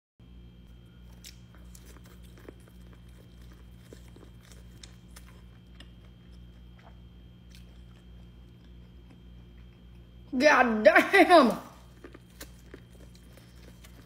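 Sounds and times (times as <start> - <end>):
steady low hum: 0.2 - 14.0
crunching corn kernels: 0.8 - 10.1, 11.8 - 14.0.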